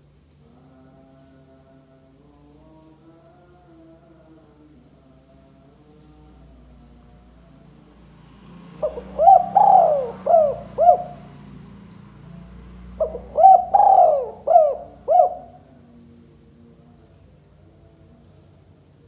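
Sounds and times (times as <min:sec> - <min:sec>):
dove cooing: 0:08.8 - 0:11.3, 0:12.9 - 0:15.7.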